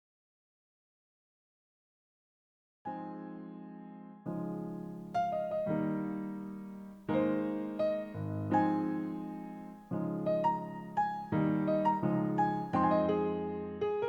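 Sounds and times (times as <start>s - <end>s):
slow piano music: 2.9s - 14.0s.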